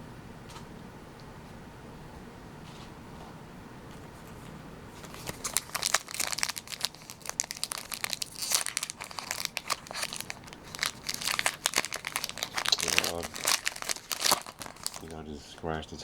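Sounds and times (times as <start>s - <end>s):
foil wrapper crinkling and tearing: 5.0s - 15.2s.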